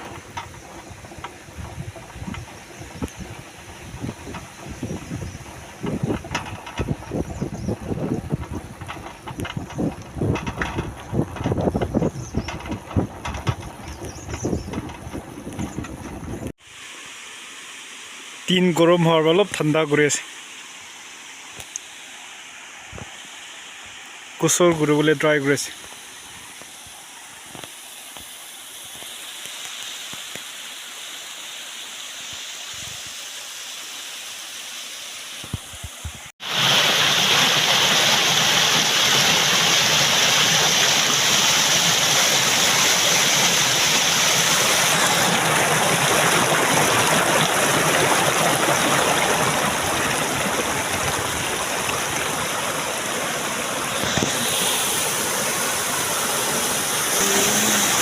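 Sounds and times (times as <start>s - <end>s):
waterfall roaring: 0.0s - 7.2s, 35.2s - 58.0s.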